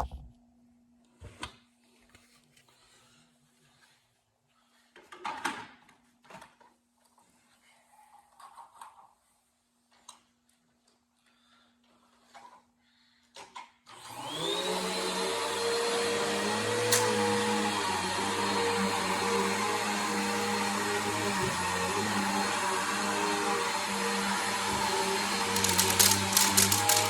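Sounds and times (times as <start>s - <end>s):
vacuum cleaner motor whine: 13.9s - 27.0s
quick run of clicks: 25.6s - 27.0s.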